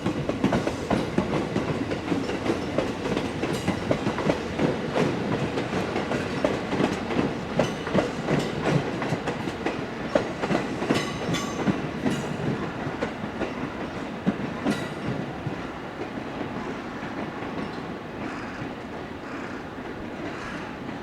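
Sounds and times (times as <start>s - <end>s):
train wheels clattering over rail joints: 0.0s - 19.0s
train rumble: 0.0s - 21.0s.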